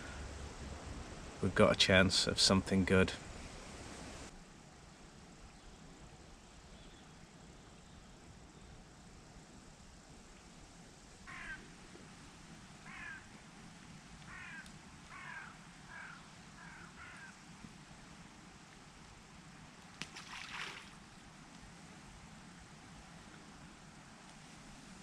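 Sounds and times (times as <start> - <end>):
bird calling: 12.8 - 13.3, 14.3 - 17.4.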